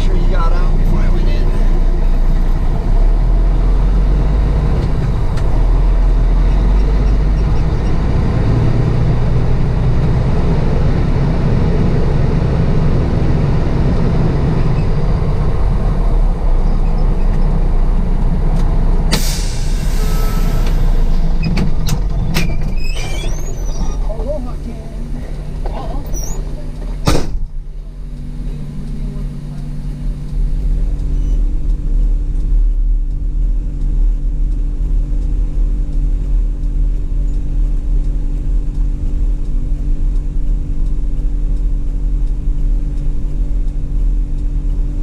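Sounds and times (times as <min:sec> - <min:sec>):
diesel truck engine running: 0:00.0 - 0:45.0
air brake hiss: 0:19.1 - 0:21.4.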